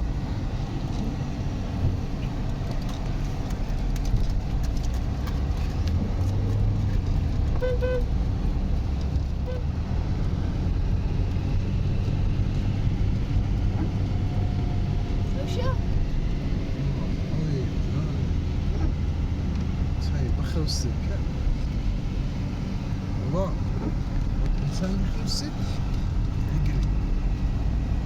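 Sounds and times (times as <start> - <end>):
vehicle engine rumbling: 0.0 - 28.0
short horn toots: 7.5 - 8.2.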